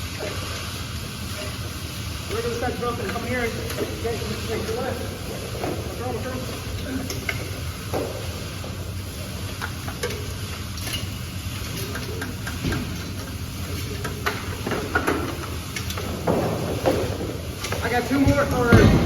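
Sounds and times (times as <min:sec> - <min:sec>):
hand tools clinking on metal: 0:09.9 - 0:12.7.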